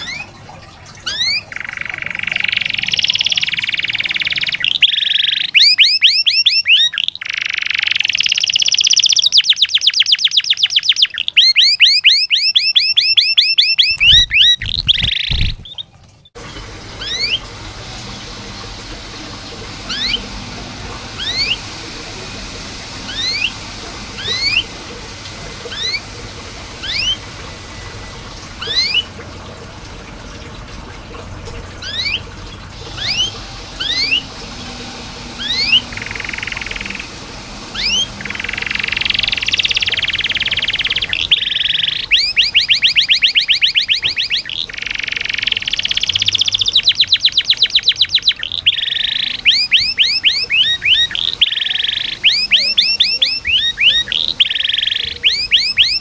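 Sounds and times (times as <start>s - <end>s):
canary singing trills: 0.0s - 0.4s, 1.0s - 17.5s, 19.7s - 24.8s, 25.7s - 26.1s, 26.8s - 27.2s, 28.5s - 29.2s, 31.8s - 34.3s, 34.9s - 56.0s
short rising bird chirps: 1.0s - 15.9s, 21.2s - 21.6s, 37.7s - 56.0s.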